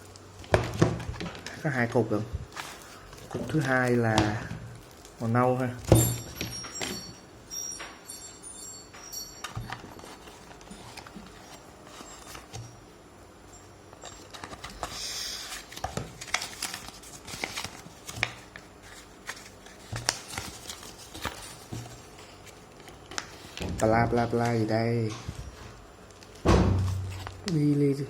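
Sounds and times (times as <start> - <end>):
package rustle: 2.4 - 5.8, 14.0 - 23.6, 26.1 - 27.7.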